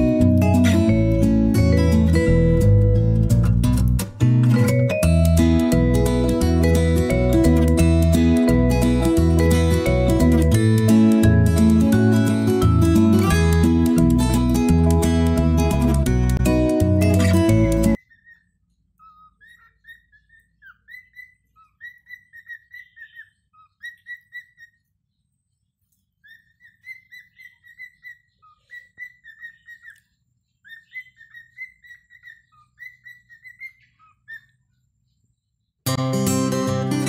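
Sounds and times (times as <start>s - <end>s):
guitar music: 0.0s - 18.0s, 35.9s - 37.0s
cockatiel whistling: 17.9s - 24.8s, 26.2s - 30.0s, 30.6s - 34.5s.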